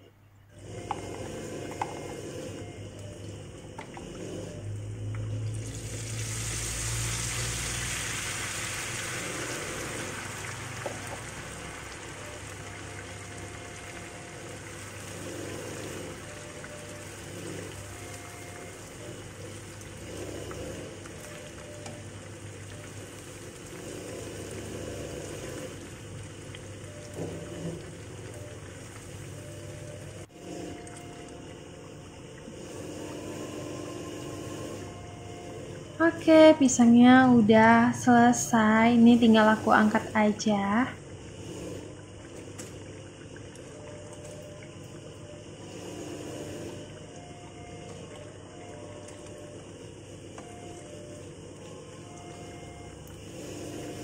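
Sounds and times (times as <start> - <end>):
fritters sizzling in oil: 4.7 - 29.9
batter poured into hot oil: 5.5 - 12.2.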